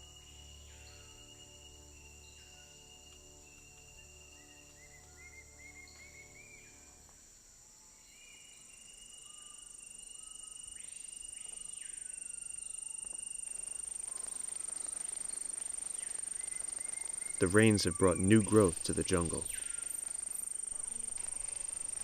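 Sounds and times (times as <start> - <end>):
insects trilling drone: 0.0 - 22.0
soft held music notes: 17.4 - 19.6.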